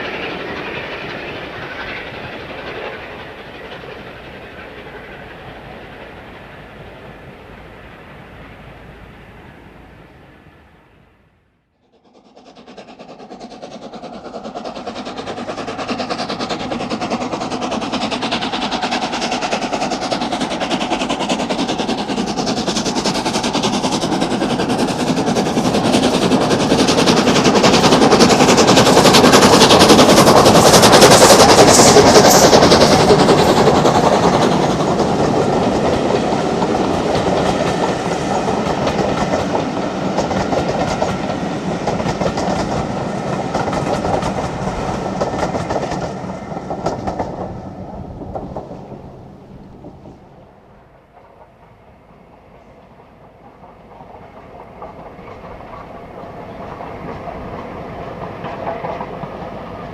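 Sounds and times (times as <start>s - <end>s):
steam locomotive exhaust beats: 0.0s - 11.1s, 11.8s - 59.9s.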